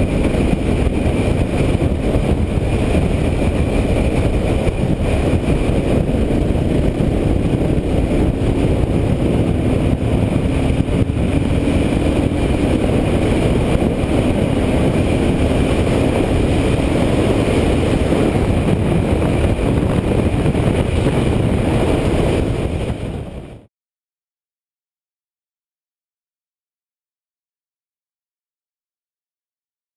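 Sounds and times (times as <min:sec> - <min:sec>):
loud wind rush: 0:00.0 - 0:23.7
motorcycle engine running: 0:00.0 - 0:23.7.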